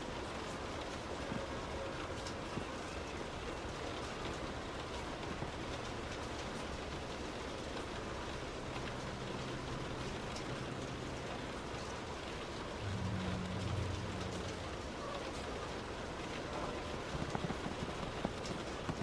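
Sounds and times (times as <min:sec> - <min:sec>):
heavy rain on a car: 0:00.0 - 0:19.0
tyres on wet road: 0:00.0 - 0:19.0
low vehicle hum: 0:08.5 - 0:16.5.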